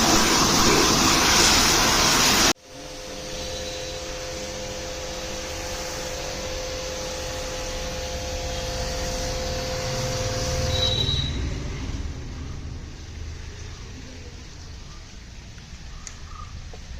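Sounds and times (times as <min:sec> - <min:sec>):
machine humming: 0:00.0 - 0:14.6
mid-pitched machine tone: 0:02.7 - 0:12.0.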